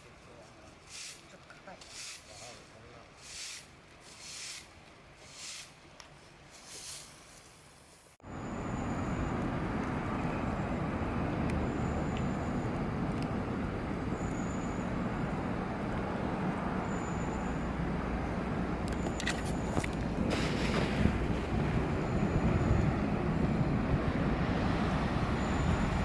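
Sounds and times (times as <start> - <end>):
steady outdoor rushing noise: 8.2 - 26.0.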